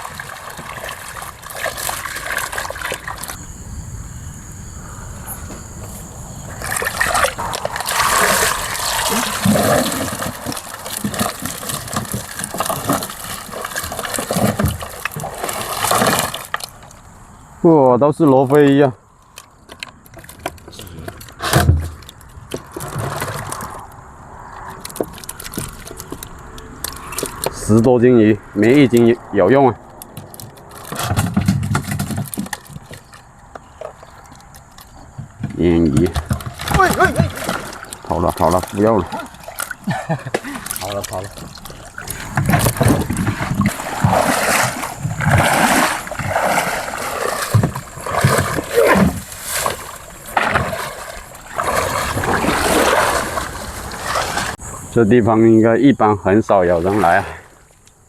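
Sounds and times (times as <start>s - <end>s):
fishing net clicking and rustling: 0.0s - 3.4s, 6.6s - 17.0s, 19.2s - 24.0s, 24.6s - 27.8s, 29.8s - 54.6s
water splashing: 0.0s - 17.1s, 24.6s - 27.9s, 28.5s - 55.0s, 56.4s - 57.8s.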